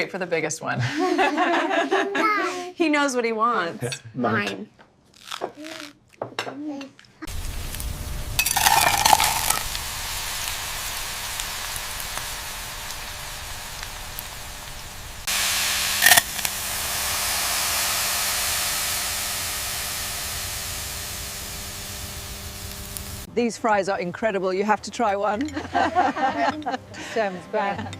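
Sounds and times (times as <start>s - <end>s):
fries sizzling in hot oil: 7.3s - 23.3s.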